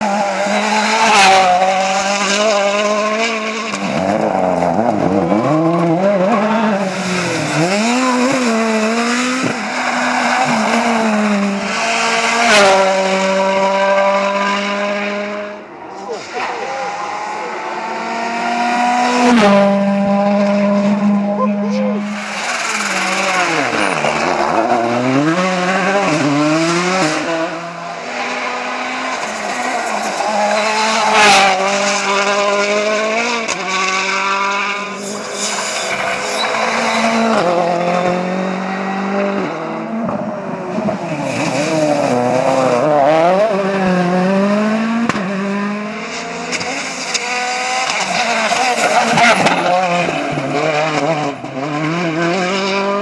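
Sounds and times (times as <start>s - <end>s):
rally car engines revving: 0.0s - 53.0s
tyres squealing: 22.0s - 25.4s.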